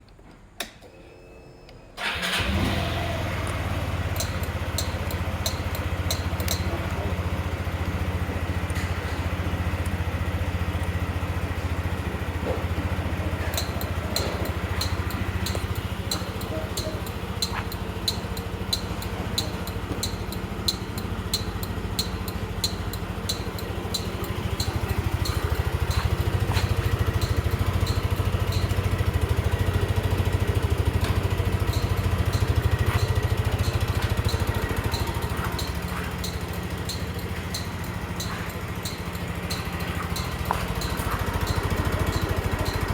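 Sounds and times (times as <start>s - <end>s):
scooter engine starting and idling: 1.8s - 42.9s
ignition click: 2.0s - 11.9s.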